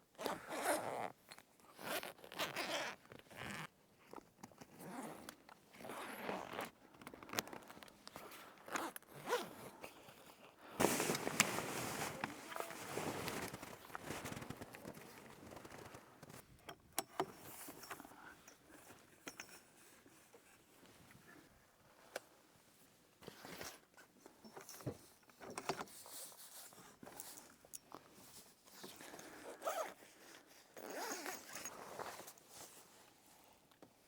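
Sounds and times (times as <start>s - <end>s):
rustling and scraping: 10.8s - 16.5s.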